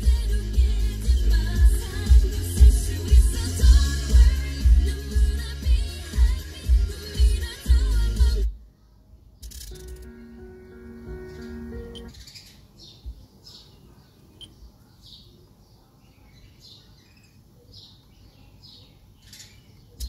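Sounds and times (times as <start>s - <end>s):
background music: 0.0s - 8.5s, 9.8s - 12.1s
birds chirping: 8.8s - 20.0s.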